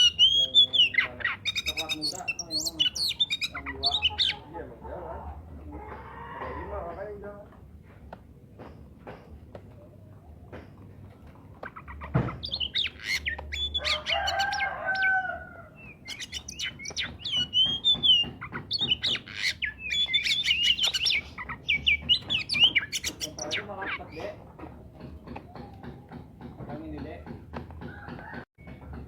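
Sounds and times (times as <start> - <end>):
bird singing whistles and chirps: 0.0 - 4.4, 12.4 - 15.1, 15.8 - 23.7
low drawn-out bird call: 12.4 - 24.1
knock: 24.2 - 29.0.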